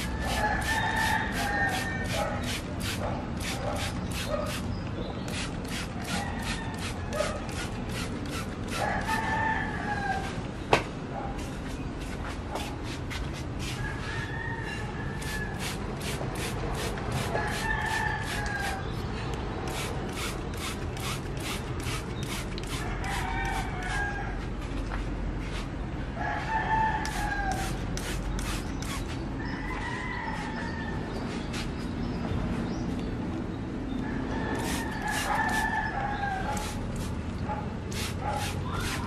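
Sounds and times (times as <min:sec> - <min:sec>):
roosters crowing: 0:00.0 - 0:03.8, 0:05.7 - 0:10.5, 0:13.6 - 0:19.0, 0:22.6 - 0:24.6, 0:26.1 - 0:27.9, 0:28.6 - 0:31.3, 0:34.0 - 0:36.9.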